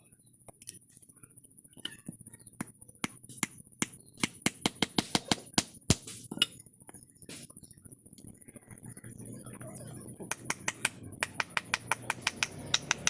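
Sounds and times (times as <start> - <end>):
hammer tapping on steel: 10.3 - 13.0.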